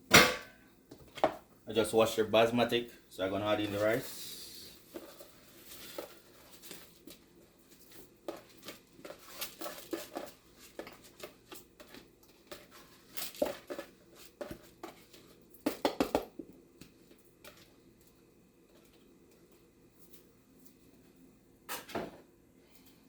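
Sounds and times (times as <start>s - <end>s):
utensil clicking and scraping pot: 8.0s - 15.4s.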